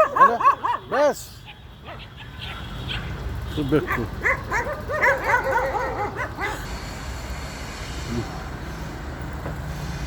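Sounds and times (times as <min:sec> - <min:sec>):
dog yelping: 0:00.0 - 0:03.2, 0:03.9 - 0:06.7.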